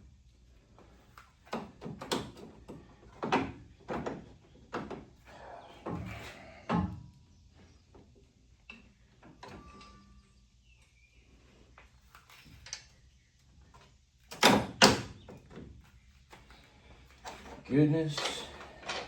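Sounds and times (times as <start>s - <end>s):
metal tools clicking and rattling: 18.0s - 19.0s.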